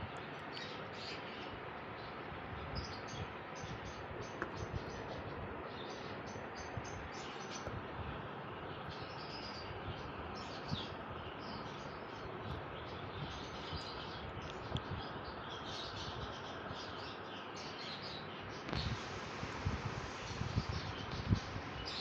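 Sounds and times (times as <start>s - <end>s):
background hiss: 15.3s - 22.0s.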